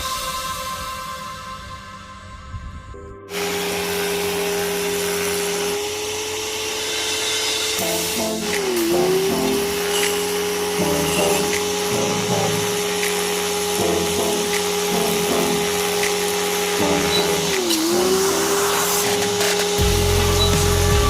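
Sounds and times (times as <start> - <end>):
motor whining: 3.5 - 21.0
hiss: 4.6 - 7.8.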